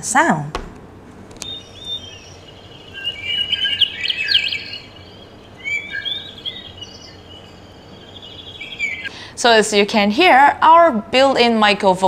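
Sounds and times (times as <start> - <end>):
small birds chirping: 1.4 - 9.4.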